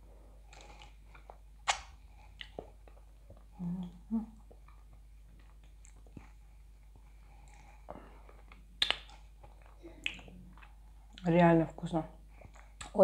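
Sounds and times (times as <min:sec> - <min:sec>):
person chewing food: 0:00.4 - 0:11.2, 0:12.2 - 0:13.0
wet mouth clicks: 0:01.6 - 0:02.7, 0:08.4 - 0:11.3
person humming: 0:03.6 - 0:04.4.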